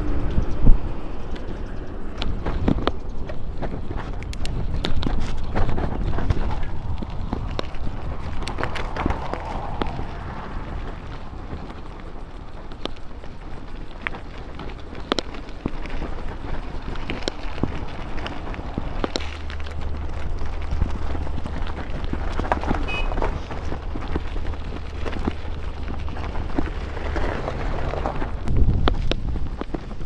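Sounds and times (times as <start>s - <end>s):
bicycle tyres rolling: 0.0s - 30.0s
bike clicks and knocks: 0.0s - 30.0s.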